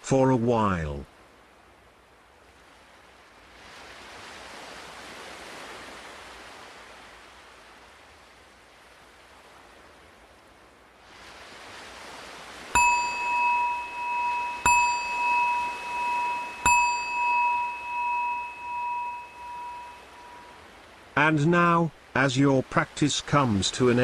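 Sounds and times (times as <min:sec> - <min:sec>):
ocean waves: 0:00.0 - 0:24.0
meditation bell ringing: 0:12.8 - 0:20.6.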